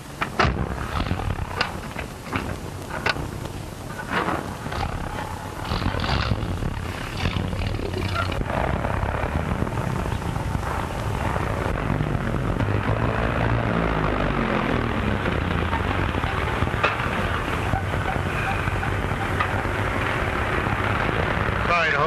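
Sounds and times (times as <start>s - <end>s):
car engine humming: 0.0s - 22.0s.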